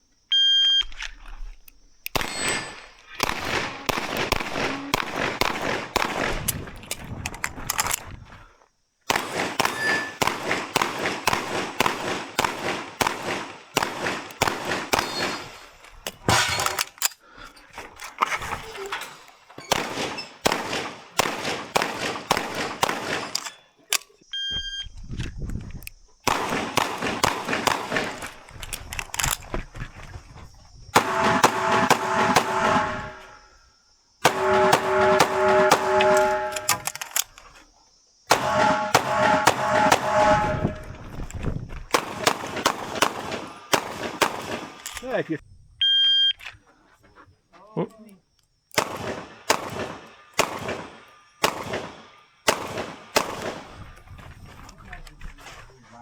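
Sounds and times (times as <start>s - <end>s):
pistol firing rapid shots: 2.1s - 6.6s, 9.1s - 15.5s, 19.7s - 23.5s, 26.3s - 28.5s, 31.0s - 33.2s, 34.2s - 36.9s, 38.3s - 40.5s, 41.9s - 44.8s, 48.8s - 53.8s
steel targets ringing: 9.6s - 10.2s, 31.0s - 33.5s, 34.3s - 36.8s, 38.3s - 41.0s.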